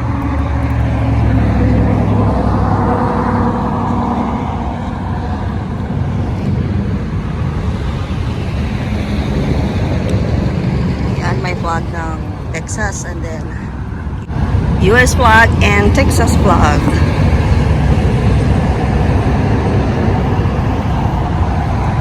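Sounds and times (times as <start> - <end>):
road noise: 0.0 - 22.0
vehicle engine hum: 0.0 - 22.0.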